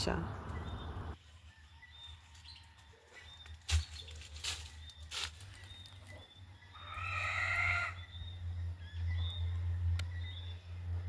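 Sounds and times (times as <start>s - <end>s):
low wind rumble: 0.0s - 1.2s
drawn-out animal call: 6.8s - 8.1s.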